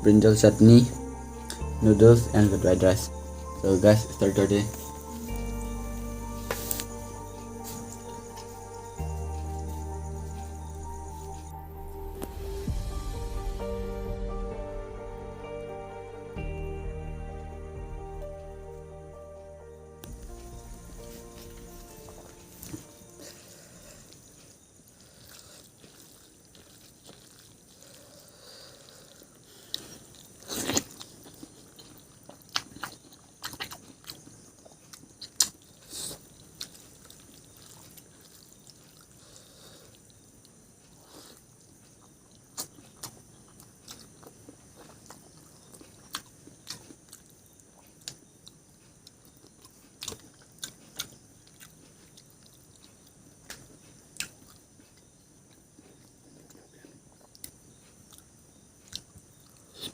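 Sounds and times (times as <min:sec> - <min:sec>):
chewing and biting food: 0:24.0 - 0:59.9
sharp clicks and wet smacks: 0:31.9 - 0:35.7, 0:45.1 - 0:56.6, 0:58.9 - 0:59.9.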